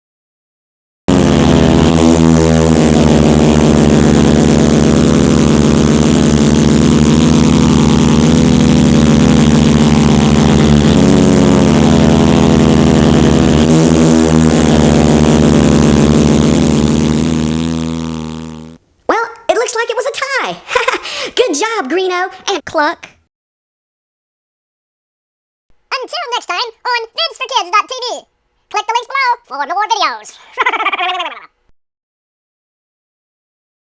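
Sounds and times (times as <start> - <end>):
truck engines running loud: 1.5 - 16.6.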